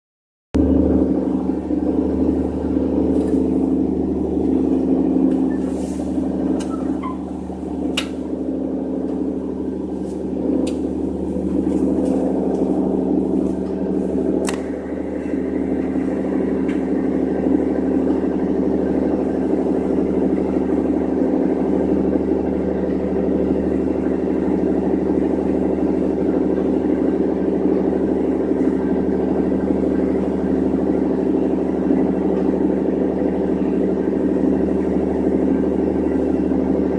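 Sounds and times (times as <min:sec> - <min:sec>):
engine running steadily: 0:00.6 - 0:36.9.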